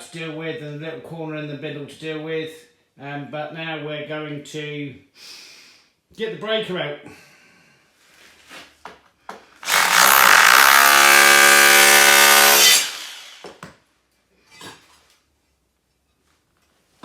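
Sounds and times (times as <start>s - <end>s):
electric demolition hammer running: 9.6s - 13.6s.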